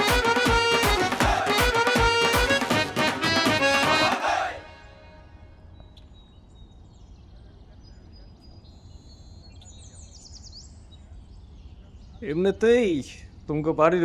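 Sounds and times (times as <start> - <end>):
faint bird chirps: 5.6 - 13.7.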